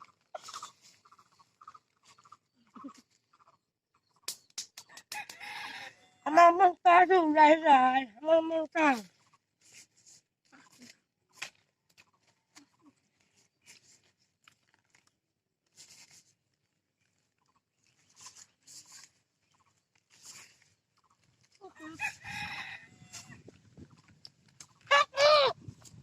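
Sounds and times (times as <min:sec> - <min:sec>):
rooster crowing: 0:05.1 - 0:06.2, 0:22.0 - 0:23.3
faint crunchy noises: 0:09.0 - 0:21.8, 0:22.4 - 0:26.0.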